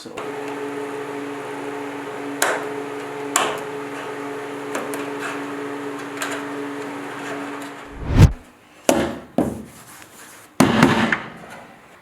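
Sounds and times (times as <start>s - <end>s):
steady low hum: 7.9s - 8.4s.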